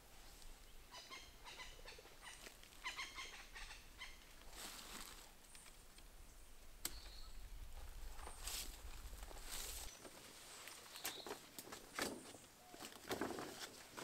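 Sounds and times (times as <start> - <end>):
leaves rustling: 0.0 - 14.0
bird chirping: 0.6 - 4.3, 5.5 - 8.5, 10.9 - 11.4.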